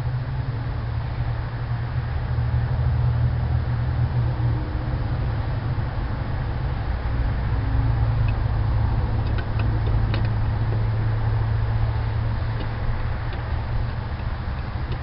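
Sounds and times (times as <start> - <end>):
car engine and road noise: 0.0 - 15.0
faint ticks: 9.2 - 10.8, 12.5 - 15.0.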